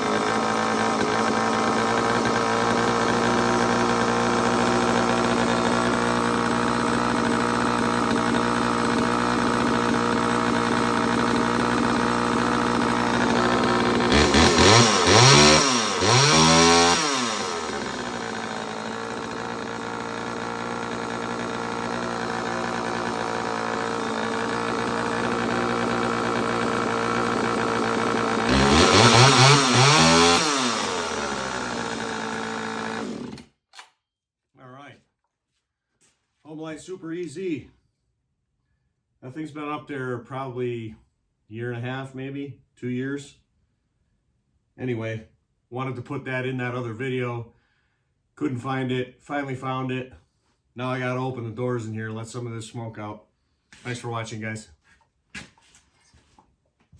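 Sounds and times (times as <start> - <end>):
chainsaw idling and revving: 0.0 - 33.5, 53.8 - 54.3.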